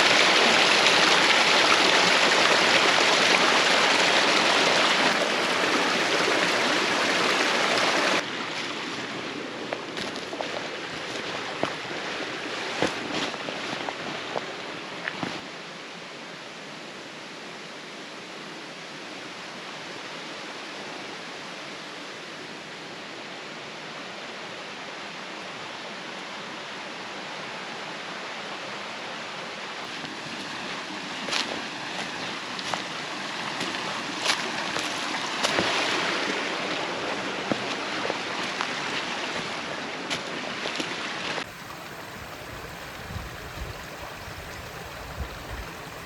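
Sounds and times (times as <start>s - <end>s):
stream rushing: 0.0s - 46.0s.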